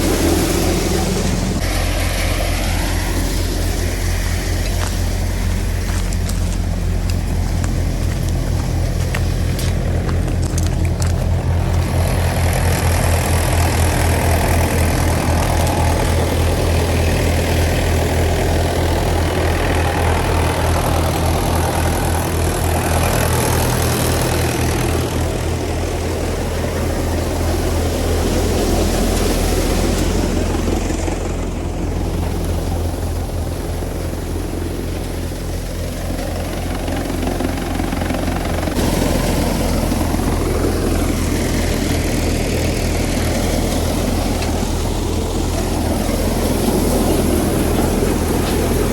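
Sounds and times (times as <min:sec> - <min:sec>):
rushing noise: 0:00.0 - 0:31.7
tractor diesel engine running: 0:00.0 - 0:48.9.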